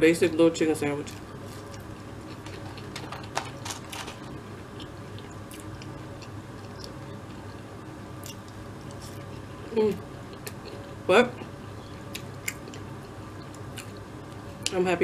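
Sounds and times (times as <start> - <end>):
low steady hum: 0.0 - 15.0
person chewing fries: 1.1 - 7.6, 8.2 - 9.5, 12.0 - 14.1.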